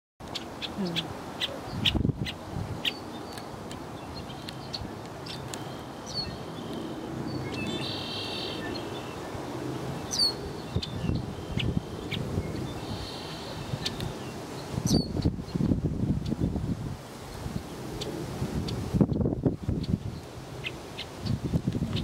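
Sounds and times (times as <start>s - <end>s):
birds chirping: 0.2s - 15.6s
buzzy bird trill: 4.1s - 9.2s, 10.1s - 15.3s.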